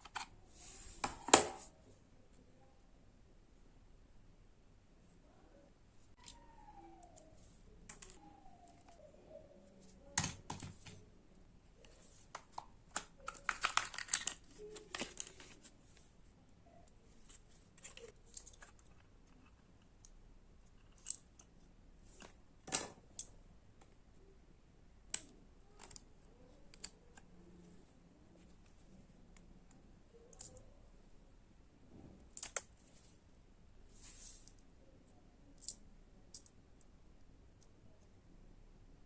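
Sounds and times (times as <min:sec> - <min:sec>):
plastic parts clicking and rattling: 0:11.8 - 0:15.7, 0:17.1 - 0:23.9.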